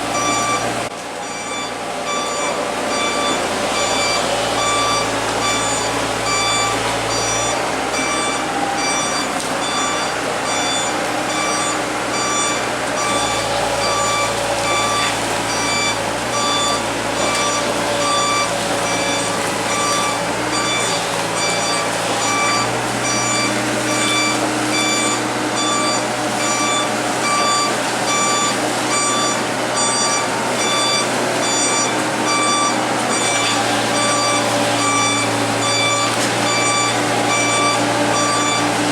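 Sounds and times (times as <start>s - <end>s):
diesel engine running: 0.0s - 38.9s
excavator warning alarm beeping: 0.0s - 38.9s.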